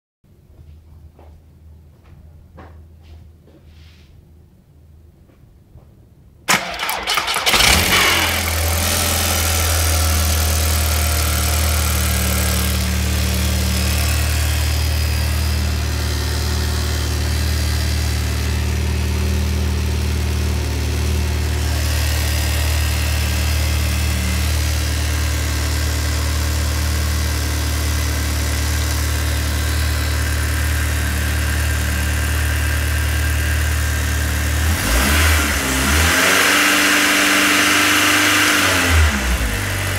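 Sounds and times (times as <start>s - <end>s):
car engine starting and idling: 6.5s - 39.9s.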